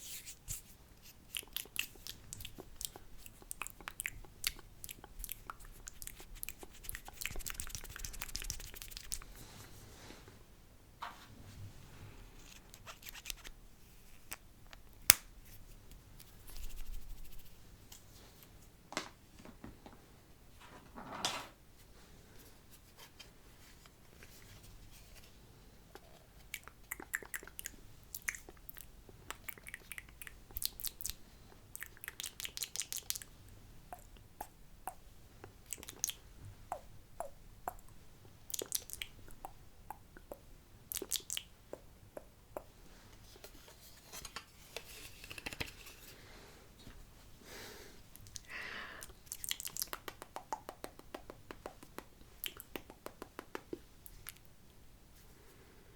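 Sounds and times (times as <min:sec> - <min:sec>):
lip smacks: 0:01.1 - 0:09.3, 0:25.9 - 0:33.3, 0:33.9 - 0:42.8, 0:48.1 - 0:54.5
wet mouth clicks: 0:01.2 - 0:09.3, 0:25.9 - 0:33.3, 0:33.9 - 0:42.8, 0:48.2 - 0:54.5.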